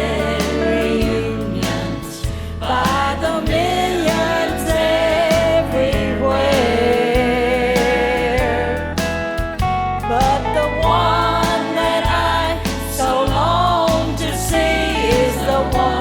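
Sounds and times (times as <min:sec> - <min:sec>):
country gospel music: 0:00.0 - 0:16.0.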